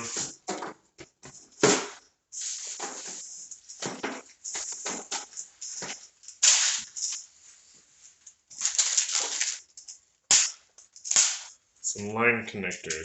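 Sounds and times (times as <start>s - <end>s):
small parts rustling and clattering: 2.4s - 7.3s, 8.0s - 11.6s.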